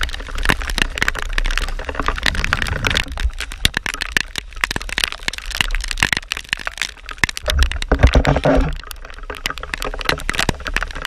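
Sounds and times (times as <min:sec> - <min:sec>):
raindrops tapping on camera housing: 0:00.0 - 0:11.0
low rumble: 0:02.1 - 0:03.4.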